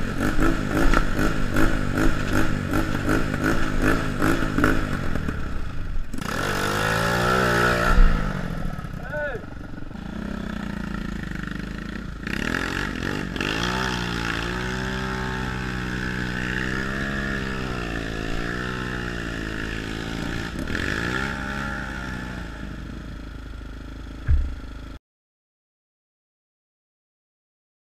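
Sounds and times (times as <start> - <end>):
dirt bike engine revving: 0.0 - 23.6, 24.3 - 25.0
sharp knock: 24.2 - 24.7.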